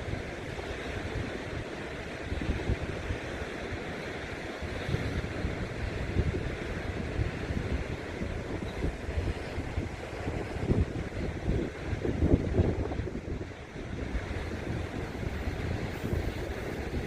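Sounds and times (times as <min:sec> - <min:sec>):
ocean surf: 0:00.0 - 0:17.0
wind buffeting microphone: 0:00.0 - 0:17.0.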